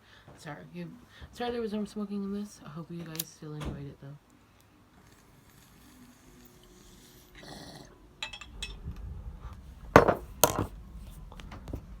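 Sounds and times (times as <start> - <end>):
loud knocks: 10.0 - 10.7.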